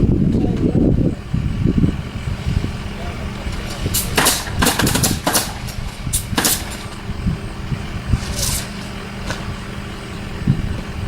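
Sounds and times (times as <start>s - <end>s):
motor running steadily: 0.0s - 11.0s.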